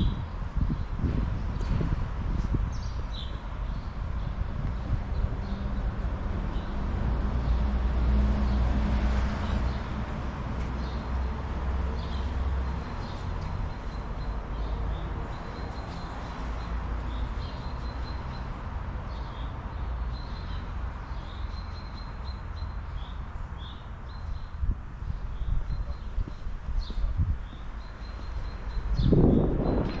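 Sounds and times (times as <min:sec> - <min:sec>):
small birds chirping: 0:19.1 - 0:30.0.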